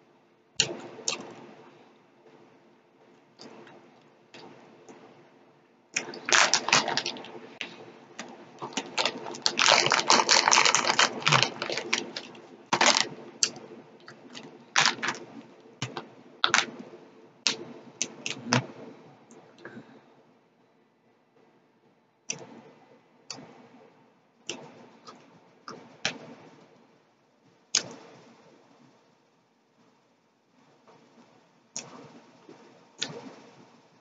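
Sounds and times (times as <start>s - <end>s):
chewing gummy candy: 6.0s - 16.7s
plastic bag crinkling: 6.0s - 16.8s.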